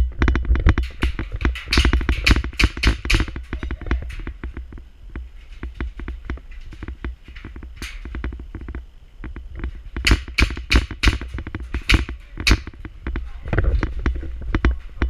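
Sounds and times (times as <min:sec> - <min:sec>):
airsoft guns firing: 0:00.8 - 0:04.3, 0:10.0 - 0:12.9.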